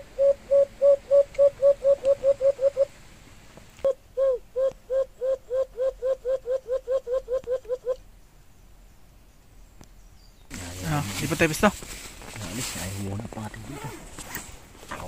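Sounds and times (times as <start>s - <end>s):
bird low hooting notes: 0.0s - 3.0s, 3.8s - 9.0s.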